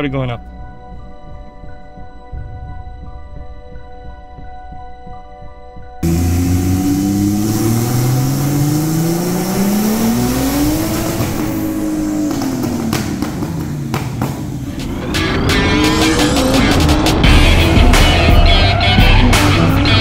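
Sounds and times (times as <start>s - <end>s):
exhaust cracks: 6.0s - 19.6s
car engine revving: 6.0s - 20.0s.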